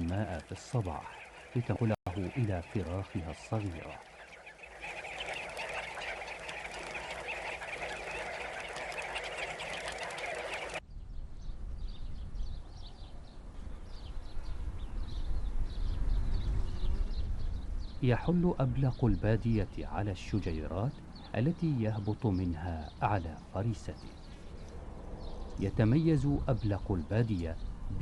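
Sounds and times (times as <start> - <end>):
flock of birds calling: 0.0 - 10.8
low wind-like rumble: 0.0 - 21.4, 22.9 - 28.0.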